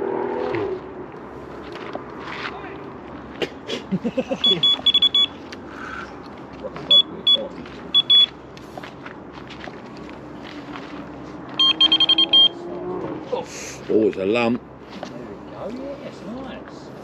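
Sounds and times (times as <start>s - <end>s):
bite alarm high beeps: 4.4s - 5.4s, 6.9s - 8.4s, 11.6s - 12.6s.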